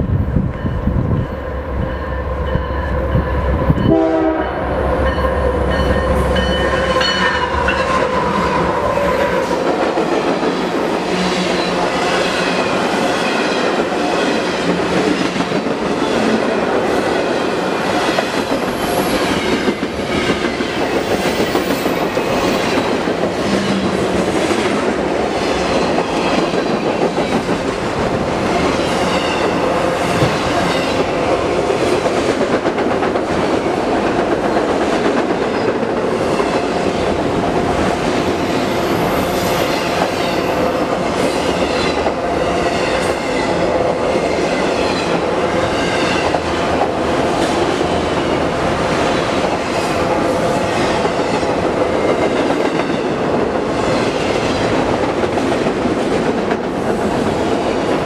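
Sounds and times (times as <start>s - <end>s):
locomotive horn: 3.8s - 4.8s.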